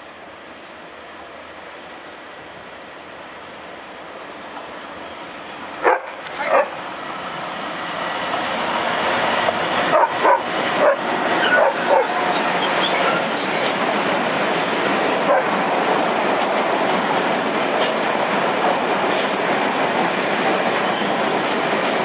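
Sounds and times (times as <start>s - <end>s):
freight train passing: 0.0s - 22.0s
dog barking: 5.8s - 6.8s, 9.9s - 12.2s.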